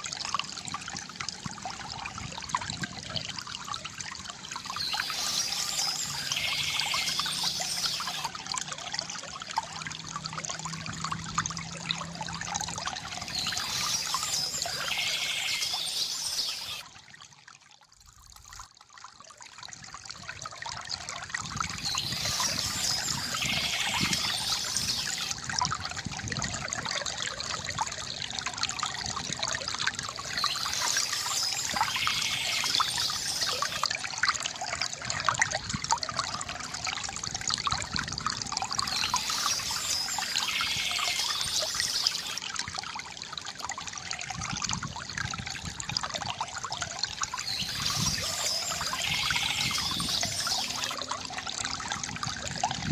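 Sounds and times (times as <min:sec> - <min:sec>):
fountain water trickling and gurgling: 0:00.0 - 0:52.9
bright water hiss: 0:04.7 - 0:08.3, 0:13.3 - 0:16.8, 0:21.8 - 0:25.3, 0:30.3 - 0:33.8, 0:38.8 - 0:42.4, 0:47.4 - 0:51.0.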